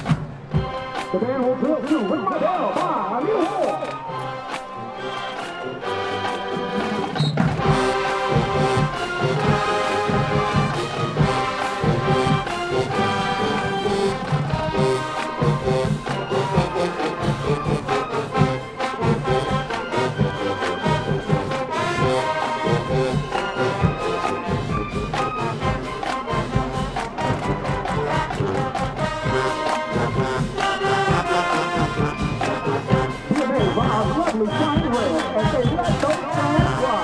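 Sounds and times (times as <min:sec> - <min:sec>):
marching band playing: 0:00.0 - 0:37.0
drum hits: 0:07.2 - 0:17.8.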